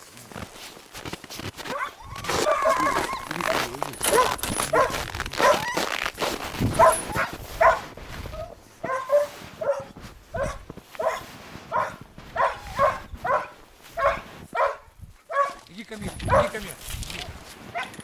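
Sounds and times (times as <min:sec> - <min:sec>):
dog barking: 0:01.7 - 0:06.0, 0:06.7 - 0:16.7, 0:17.7 - 0:18.0.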